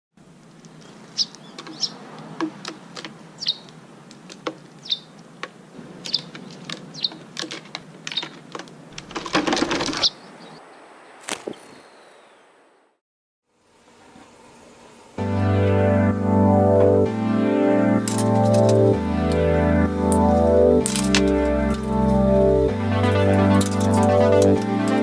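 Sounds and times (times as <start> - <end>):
small birds chirping: 0.4 - 8.9, 9.8 - 12.6
rustling noise: 0.5 - 10.2.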